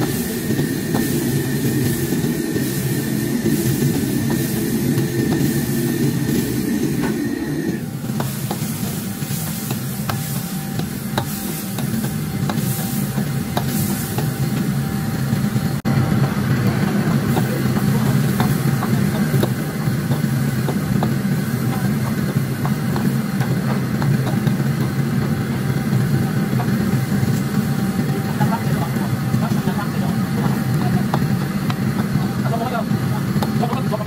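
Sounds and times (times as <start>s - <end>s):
meat sizzling in a wok: 8.3s - 14.4s.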